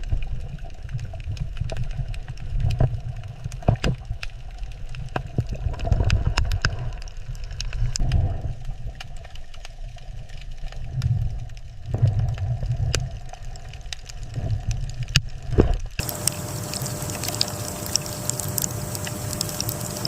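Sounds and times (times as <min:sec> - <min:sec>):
underwater rumble of moving water: 0:00.0 - 0:20.0
sharp clicks and pops: 0:11.9 - 0:20.0.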